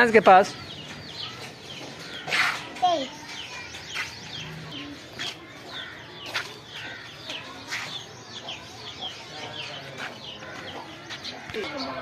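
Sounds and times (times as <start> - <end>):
birds chirping: 0.0 - 12.0
sharp bird calls: 0.4 - 12.0.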